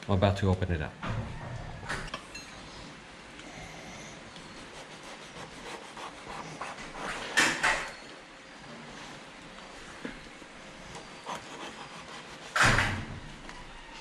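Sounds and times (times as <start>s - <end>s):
knife scraping fruit rind: 4.6s - 7.6s, 10.9s - 12.8s.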